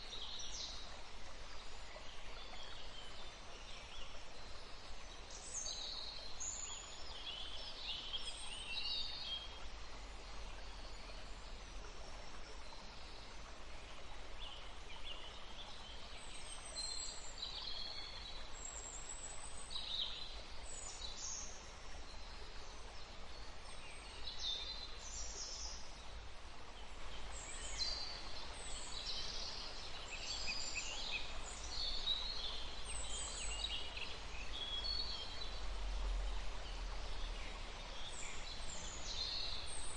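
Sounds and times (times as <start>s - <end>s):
songbirds chirping: 0.0s - 39.9s
stream rushing: 25.8s - 39.9s.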